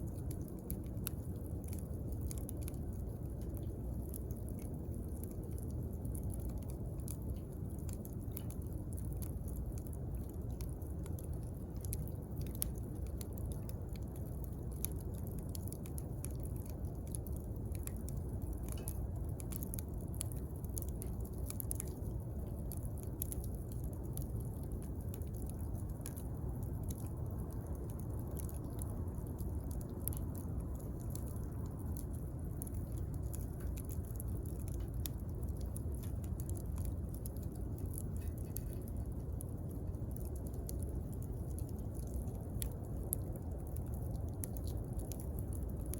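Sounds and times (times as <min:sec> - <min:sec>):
wood fire crackling: 0:00.0 - 0:45.9.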